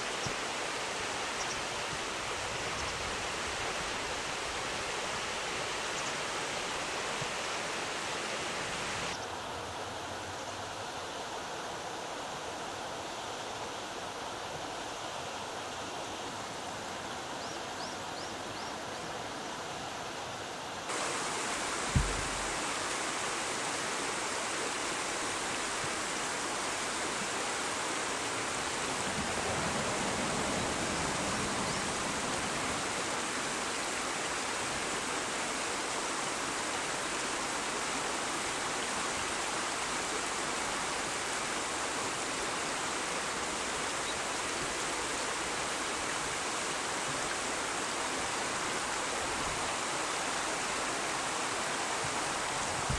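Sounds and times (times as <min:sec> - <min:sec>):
river water rushing: 0:00.0 - 0:52.9
dull thump: 0:21.8 - 0:22.6.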